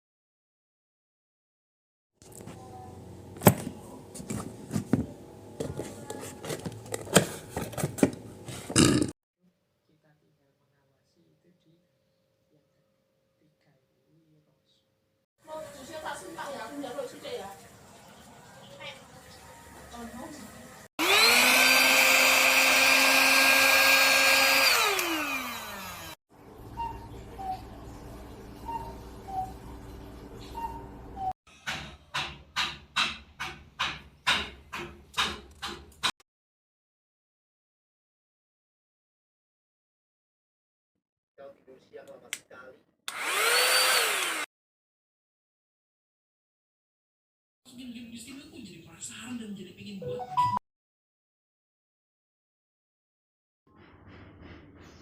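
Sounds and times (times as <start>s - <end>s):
mini vacuum cleaner motor whine: 21.0s - 26.2s, 43.1s - 44.5s.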